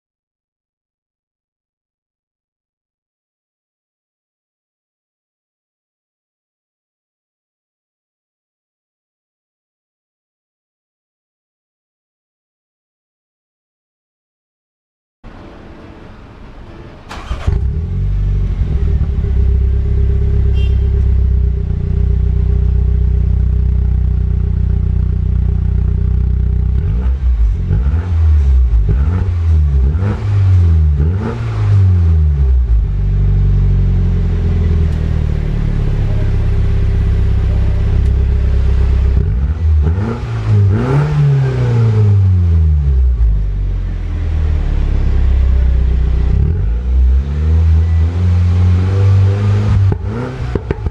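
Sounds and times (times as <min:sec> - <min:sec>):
car engine starting: 0:16.0 - 0:50.9
car engine idling and revving: 0:17.1 - 0:50.9.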